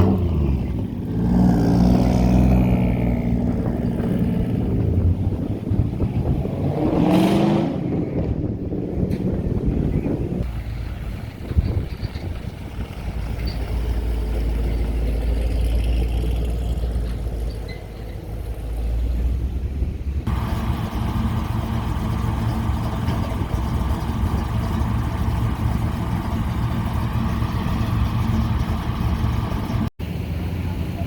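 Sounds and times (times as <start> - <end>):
vehicle noise: 0.0 - 31.0
wind rumbling on microphone: 0.2 - 14.2
car engine running: 20.3 - 31.0.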